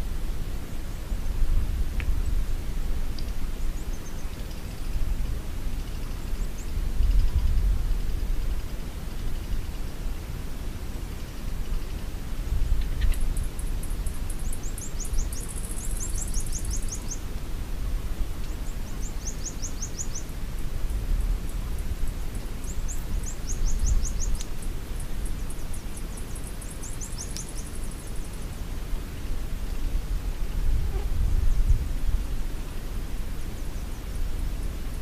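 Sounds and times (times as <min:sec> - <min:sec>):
small birds chirping: 0:12.6 - 0:17.3, 0:18.4 - 0:28.6.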